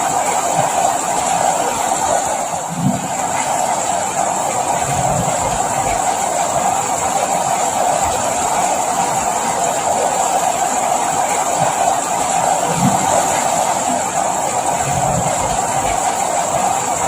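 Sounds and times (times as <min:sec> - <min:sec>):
rain hiss: 0:00.0 - 0:17.0.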